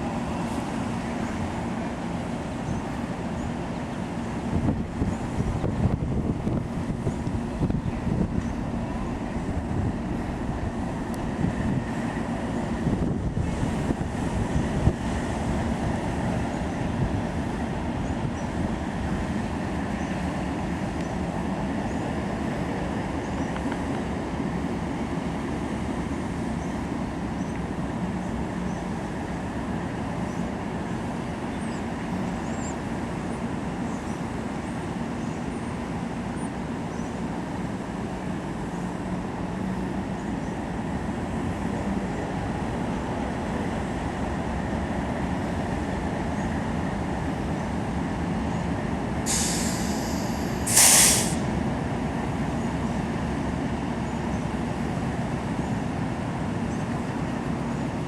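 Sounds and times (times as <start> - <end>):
train rumbling on rails: 0.0 - 58.0.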